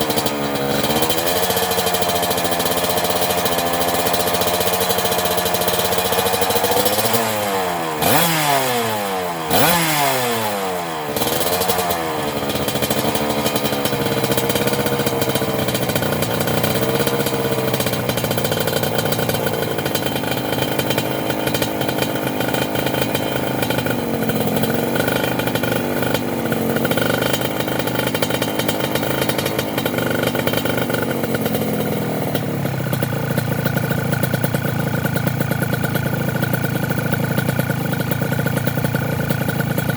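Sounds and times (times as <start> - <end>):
two-stroke motorcycle engine revving: 0.0 - 39.9.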